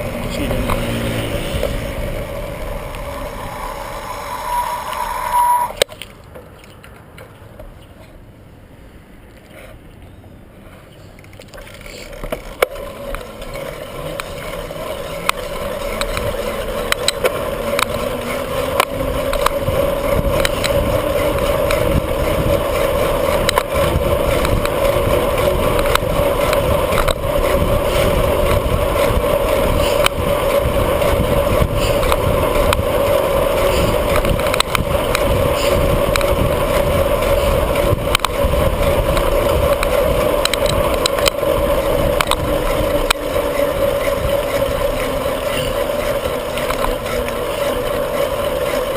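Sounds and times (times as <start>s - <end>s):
bicycle tyre rumble on pavement: 0.0s - 48.9s
small rattles and clicks: 10.7s - 48.9s
wind on microphone: 17.8s - 45.8s.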